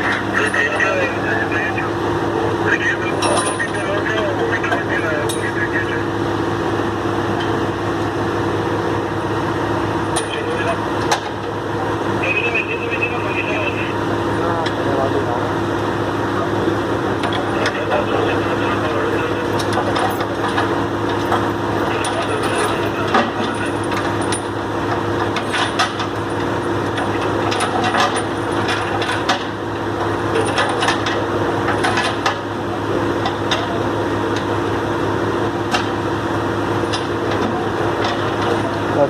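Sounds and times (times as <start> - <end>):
truck engine idling: 0.0 - 39.0.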